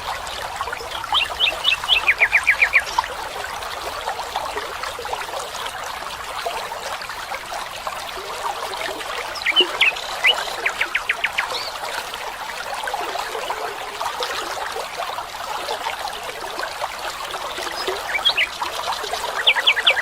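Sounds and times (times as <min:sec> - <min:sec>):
running water: 0:00.0 - 0:20.0
birds chirping: 0:00.8 - 0:03.1, 0:09.3 - 0:11.9, 0:17.6 - 0:18.6, 0:19.3 - 0:20.0.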